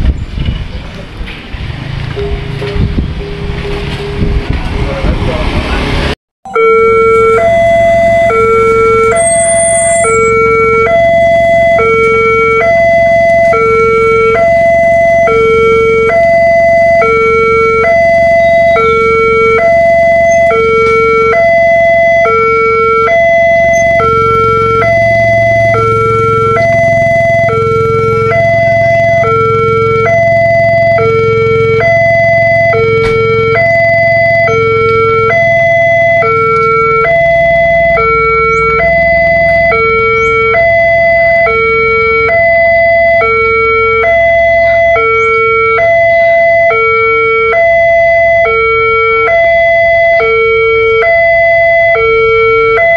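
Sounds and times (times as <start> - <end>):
low rumble: 0.0 - 6.2
level crossing warning alarm: 2.2 - 5.0, 6.5 - 52.9.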